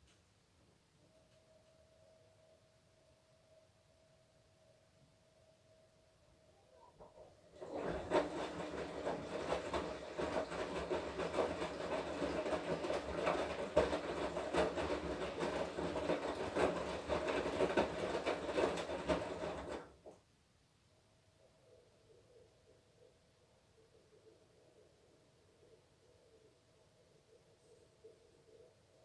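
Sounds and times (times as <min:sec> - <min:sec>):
washing machine motor hum: 0:07.0 - 0:20.2
laundry tumbling knocks: 0:07.6 - 0:20.1.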